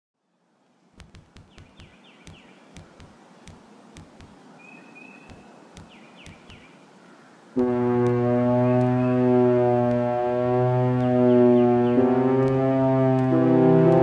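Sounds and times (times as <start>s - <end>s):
soft hiss: 0.2s - 7.6s
sharp clicks with low knock: 1.0s - 4.4s, 5.2s - 6.7s, 8.0s - 9.2s, 9.8s - 10.2s, 10.9s - 14.0s
bird chirps: 1.3s - 3.5s, 4.6s - 7.3s, 8.0s - 10.1s, 10.8s - 12.8s
whistled bird note: 7.7s - 10.2s.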